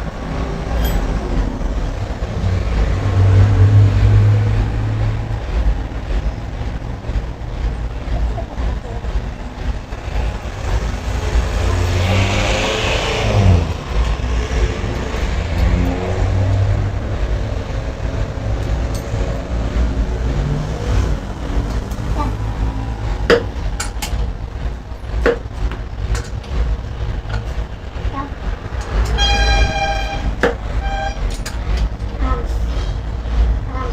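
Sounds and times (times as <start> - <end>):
engine low rumble: 0.0 - 33.9
sharp knocks: 23.0 - 24.3, 25.1 - 26.6.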